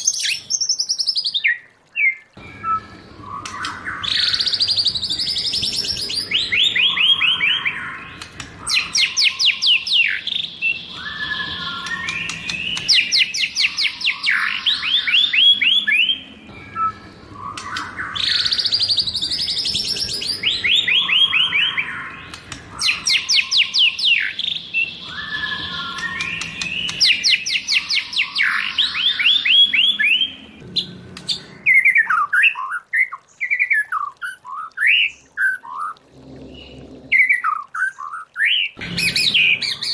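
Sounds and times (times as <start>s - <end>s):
bird singing whistled phrases: 0.0s - 30.4s
bird chirps: 0.0s - 39.9s.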